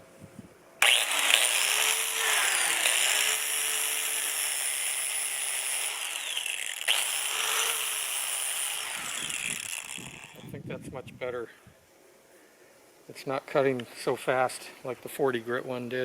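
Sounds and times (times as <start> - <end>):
angle grinder grinding metal: 0.8 - 10.5.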